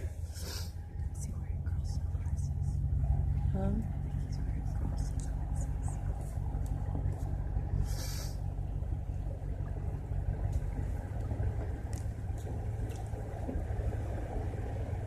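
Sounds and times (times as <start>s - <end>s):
vehicle engine running: 0.0s - 15.0s
short hiss: 7.9s - 8.4s.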